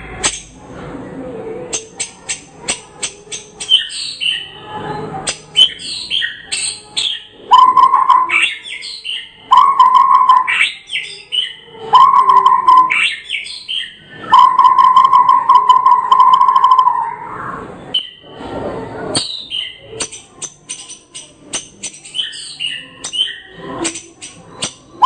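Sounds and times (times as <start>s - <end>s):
bird singing whistled phrases: 5.6s - 17.2s, 17.9s - 18.2s, 19.2s - 19.8s, 22.0s - 23.6s.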